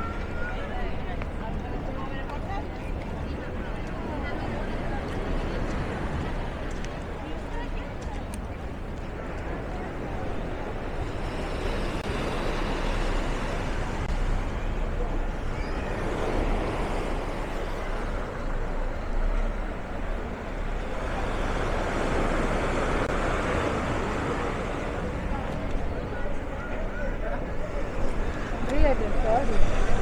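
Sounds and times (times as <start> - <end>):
low traffic rumble: 0.0 - 30.0
motor vehicles passing: 9.2 - 30.0.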